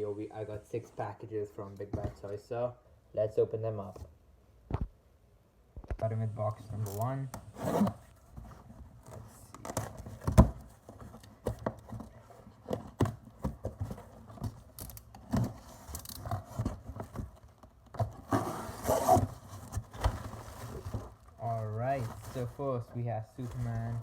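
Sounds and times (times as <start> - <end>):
cardboard rustling: 6.7 - 24.0
cardboard box knocks and scrapes: 9.6 - 22.5.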